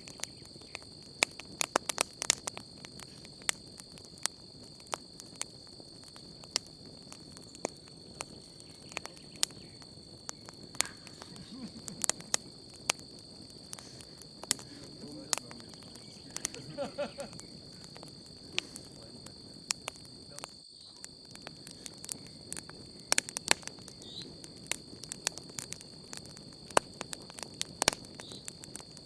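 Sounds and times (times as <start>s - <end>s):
campfire crackling and popping: 0.0s - 29.0s
crickets chirring: 0.0s - 29.0s.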